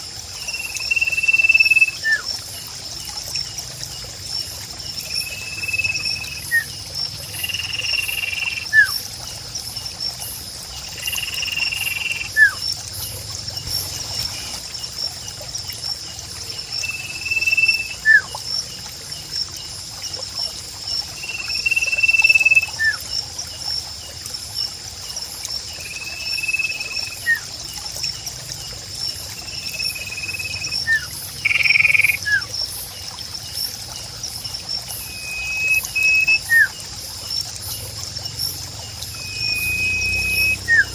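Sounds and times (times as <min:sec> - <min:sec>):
high insect trill: 0:00.0 - 0:40.9
water trickling: 0:00.0 - 0:40.9
falling whistles: 0:39.2 - 0:40.9.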